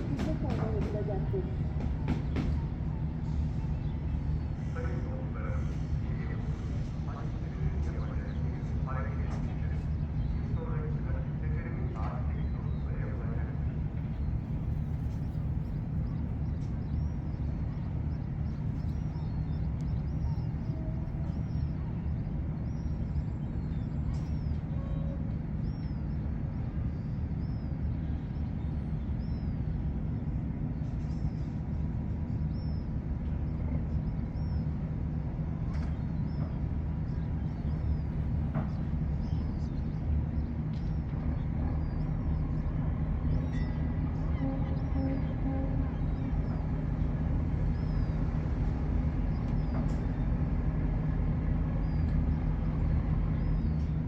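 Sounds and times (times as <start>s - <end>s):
ship engine humming: 0.0s - 54.0s.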